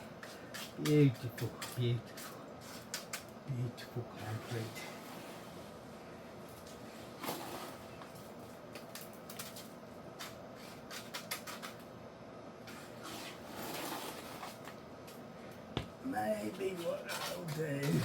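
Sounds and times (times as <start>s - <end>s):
hand tools scraping concrete: 7.2s - 8.0s, 12.7s - 14.7s.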